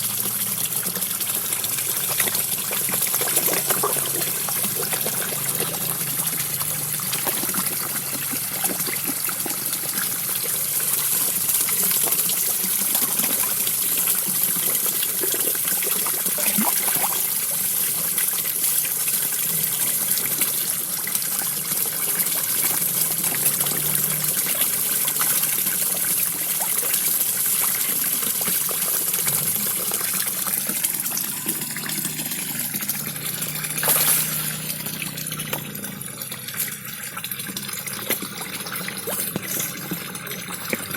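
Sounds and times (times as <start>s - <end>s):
waterfall splashing into pond: 0.0s - 40.9s
louder water splash: 33.6s - 35.4s.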